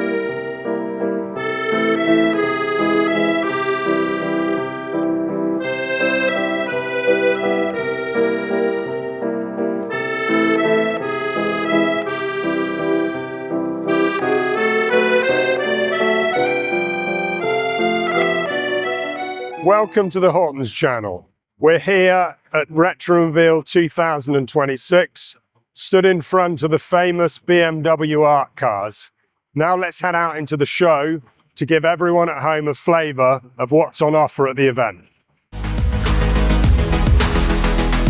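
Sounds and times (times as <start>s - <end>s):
accordion music: 0.0s - 20.6s, 35.6s - 38.0s.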